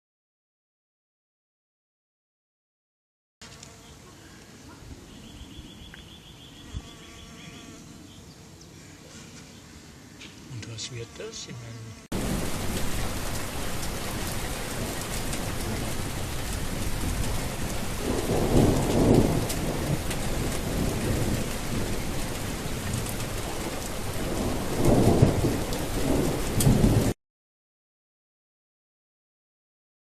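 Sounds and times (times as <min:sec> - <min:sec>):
steady rain: 0:12.1 - 0:27.2
rolls of thunder: 0:12.2 - 0:27.2.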